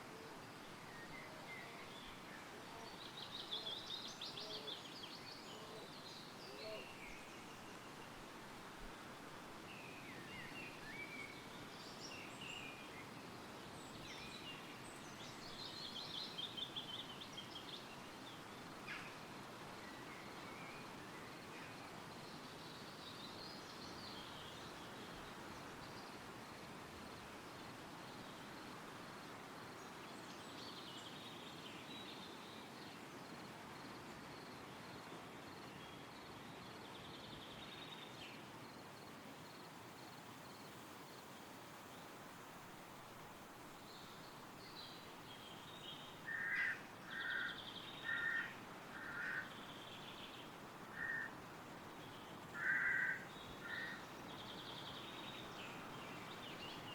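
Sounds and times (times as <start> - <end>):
wind rustling through trees: 0.0 - 56.9
birdsong: 43.6 - 56.9.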